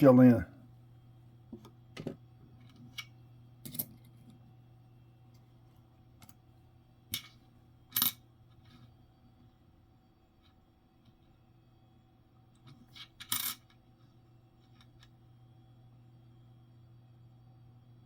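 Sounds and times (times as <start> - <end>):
faint steady hum: 0.0 - 18.0
coins clicking and clinking: 7.1 - 8.2, 12.9 - 13.8.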